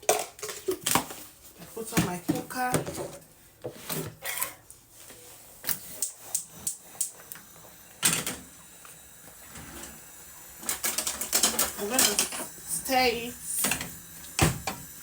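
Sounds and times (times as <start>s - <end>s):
pot and utensils clicking: 10.7s - 12.6s.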